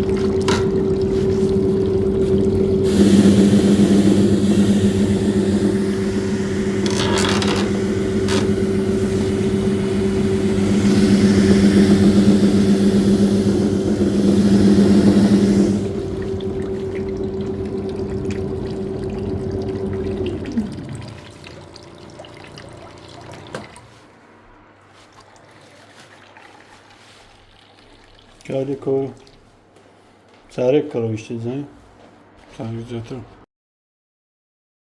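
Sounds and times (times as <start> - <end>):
water rushing: 0.0 - 29.5
washing machine motor humming: 0.0 - 30.8.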